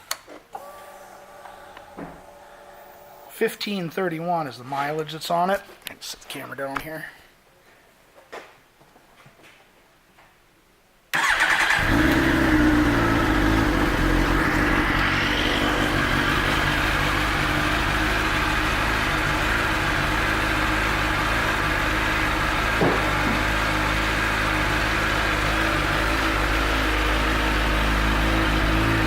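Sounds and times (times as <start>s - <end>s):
starter motor cranking: 11.2s - 21.0s
motorcycle engine idling: 11.2s - 29.0s.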